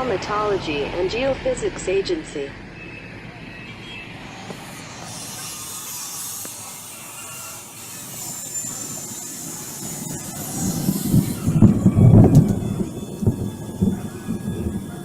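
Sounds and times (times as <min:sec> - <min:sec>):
deep rumbling thunder: 0:09.4 - 0:15.0.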